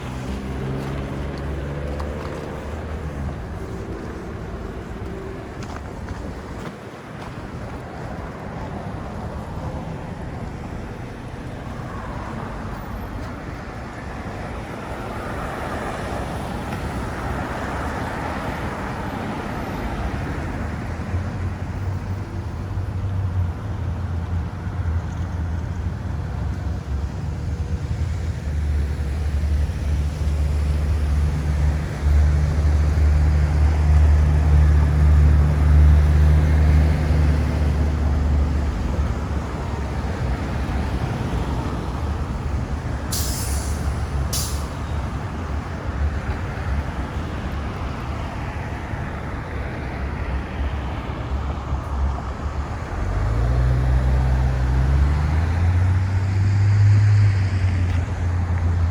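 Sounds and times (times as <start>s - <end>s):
car tyres going by: 0.0s - 23.2s
heavy vehicle engine rumble: 0.0s - 58.9s.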